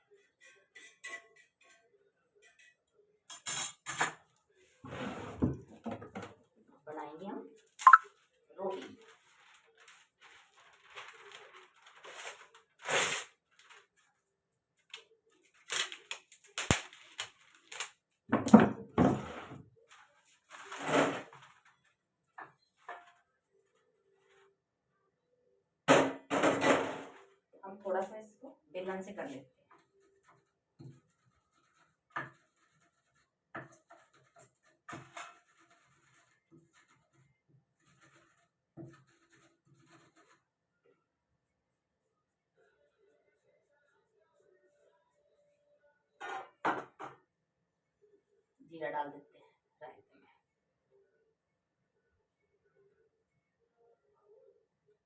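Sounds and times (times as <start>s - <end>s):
kitchen clatter: 0.1s - 4.3s, 25.9s - 27.2s.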